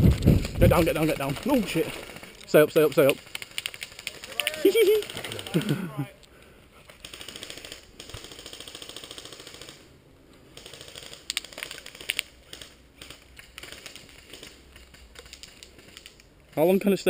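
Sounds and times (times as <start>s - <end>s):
airsoft gun full-auto rattle: 0.1s - 5.8s, 6.9s - 9.9s, 10.5s - 16.6s.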